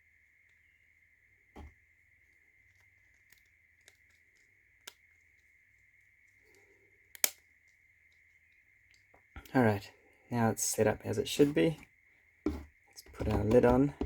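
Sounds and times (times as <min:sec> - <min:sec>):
small wooden clicks: 0:06.5 - 0:09.3.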